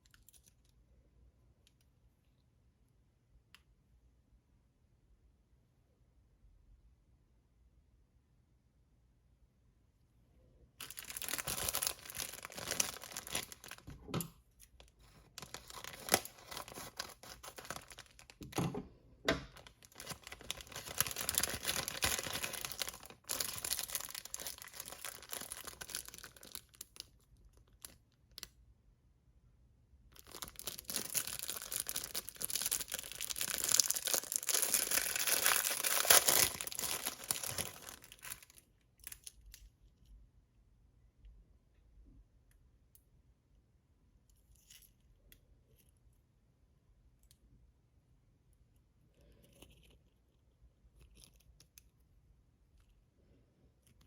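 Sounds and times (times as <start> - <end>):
packaging tearing and crinkling: 10.8 - 13.9, 15.2 - 18.6, 19.6 - 28.0, 30.2 - 39.2.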